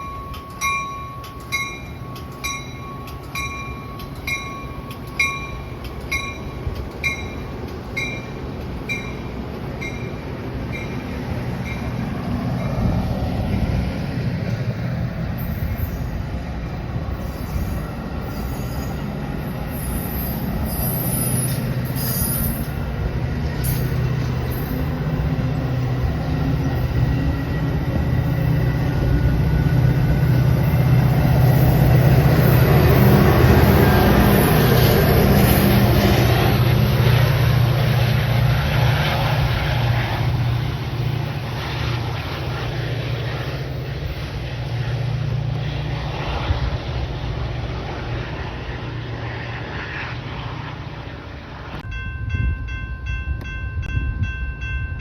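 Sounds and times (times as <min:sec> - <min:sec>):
diesel train engine drone: 0:00.0 - 0:55.0
rail and wheel noise: 0:00.0 - 0:55.0
wheel squeal: 0:17.2 - 0:19.1, 0:19.7 - 0:22.8.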